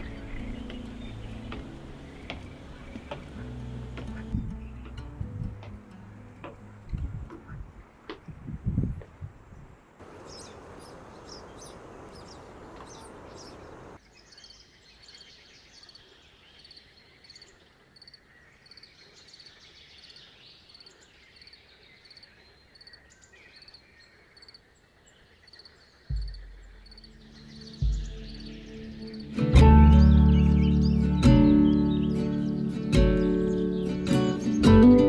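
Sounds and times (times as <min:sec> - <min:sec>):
high bird chirps: 0:00.0 - 0:04.4, 0:10.0 - 0:14.0
insects calling: 0:00.0 - 0:04.4, 0:10.0 - 0:14.0
soft background hiss: 0:00.0 - 0:04.4, 0:10.0 - 0:14.0.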